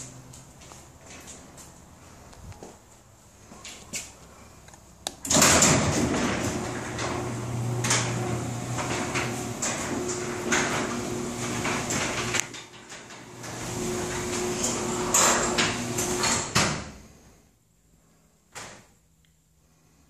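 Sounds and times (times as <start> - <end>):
garage door rattling on tracks: 5.3 - 16.9.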